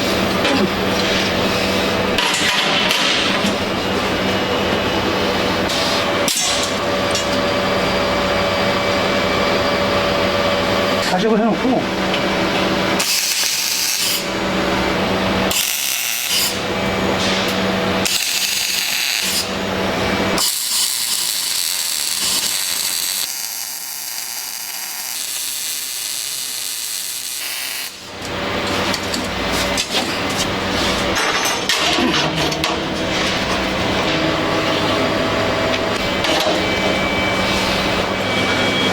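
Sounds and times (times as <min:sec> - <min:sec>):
power tool running: 0:03.4 - 0:31.2.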